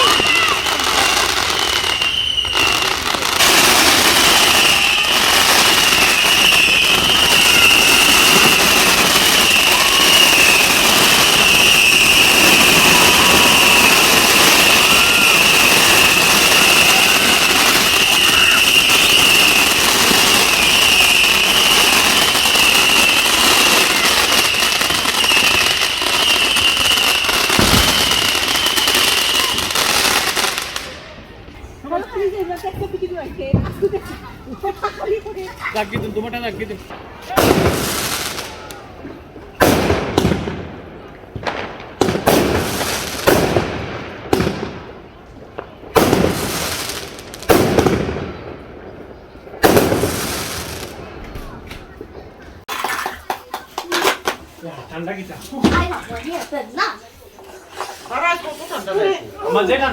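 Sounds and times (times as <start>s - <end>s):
high whistle: 0.0s - 30.6s
fireworks crackling: 0.0s - 59.9s.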